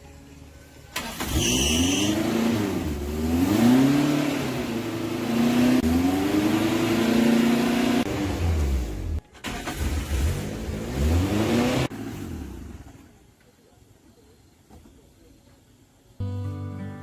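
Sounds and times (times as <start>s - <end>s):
truck engine starting and revving: 0.9s - 13.1s.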